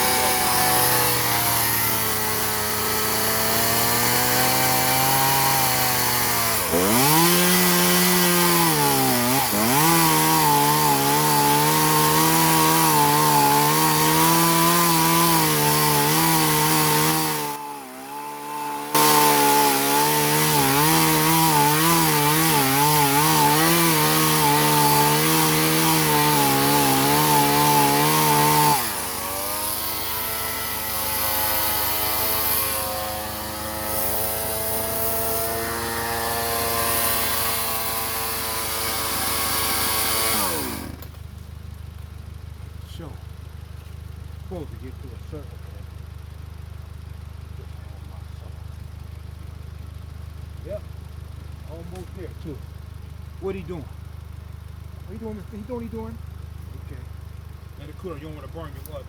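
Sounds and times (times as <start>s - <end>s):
chainsaw cutting wood: 0.0s - 41.3s, 57.8s - 59.0s.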